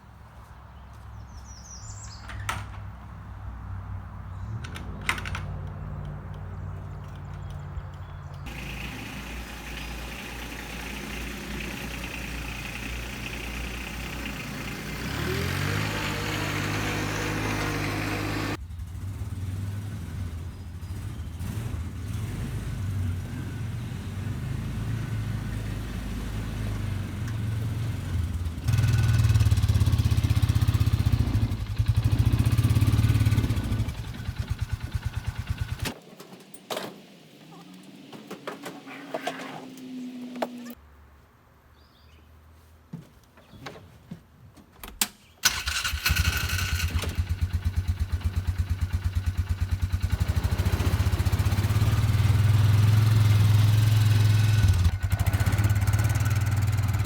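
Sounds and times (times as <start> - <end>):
vehicle engine revving: 8.4 - 36.0, 45.4 - 57.0.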